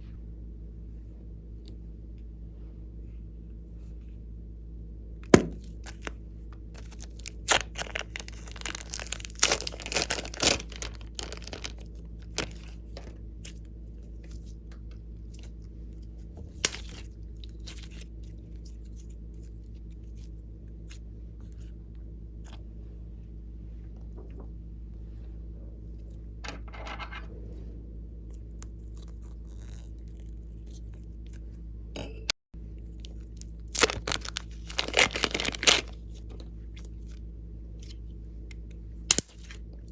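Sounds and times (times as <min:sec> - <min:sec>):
steady low hum: 0:00.0 - 0:39.9
slime crackling and popping: 0:05.3 - 0:06.2, 0:06.8 - 0:12.8, 0:33.0 - 0:36.0, 0:39.1 - 0:39.6.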